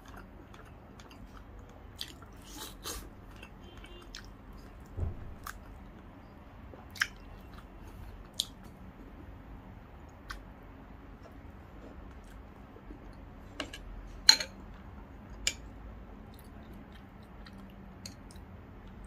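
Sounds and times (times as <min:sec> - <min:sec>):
quiet chewing: 0:00.0 - 0:06.1, 0:10.0 - 0:10.4, 0:16.3 - 0:19.0.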